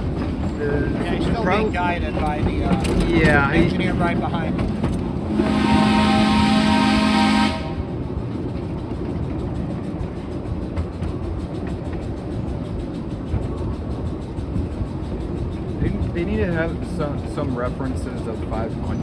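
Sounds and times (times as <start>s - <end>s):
rail joint clicking: 0.0s - 19.0s
train cars rumbling on track: 0.0s - 19.0s
locomotive whistle: 5.3s - 7.9s.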